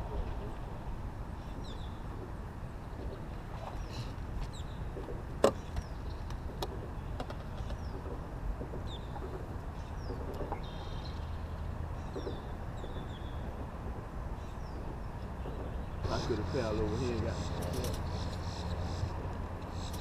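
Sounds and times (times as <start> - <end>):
birds chirping: 0.4 - 13.6, 14.3 - 20.0.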